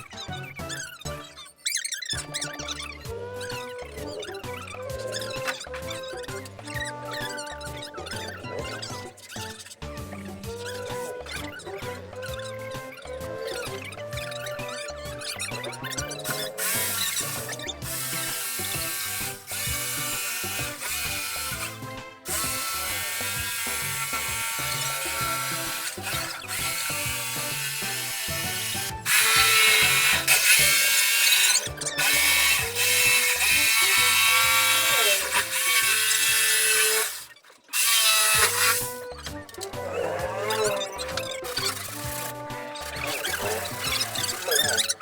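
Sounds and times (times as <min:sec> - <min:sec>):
electric jigsaw cutting: 0:13.7 - 0:45.0.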